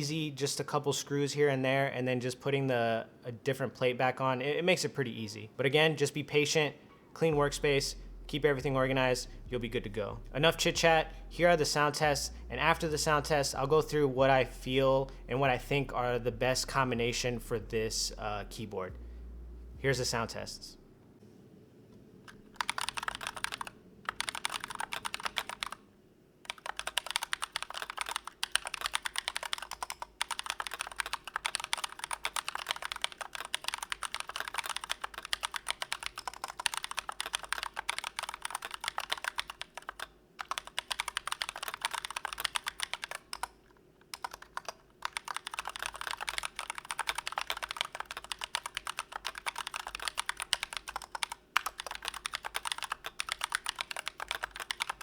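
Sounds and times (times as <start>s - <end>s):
mechanical keyboard typing: 22.2s - 55.0s.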